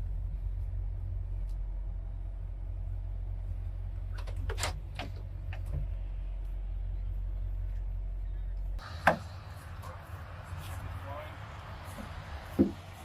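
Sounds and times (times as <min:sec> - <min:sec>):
outdoor noise: 0:00.0 - 0:13.0
truck cab rumble: 0:00.0 - 0:13.0
truck door clunk: 0:04.1 - 0:05.9, 0:08.8 - 0:09.4, 0:12.0 - 0:12.9.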